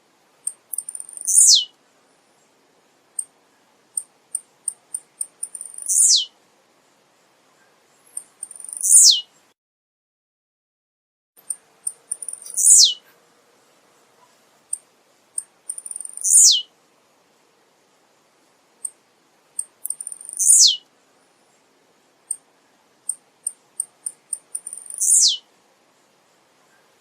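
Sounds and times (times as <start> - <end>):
bird singing high ticking notes: 0.5 - 1.7, 4.0 - 6.3, 8.0 - 9.3, 11.4 - 13.0, 15.4 - 16.7, 19.6 - 20.8, 23.0 - 25.4.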